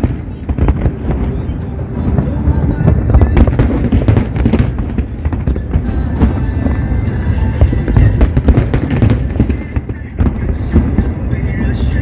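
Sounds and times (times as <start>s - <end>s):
fireworks booming: 0.0s - 12.0s
fireworks crackling: 0.0s - 12.0s.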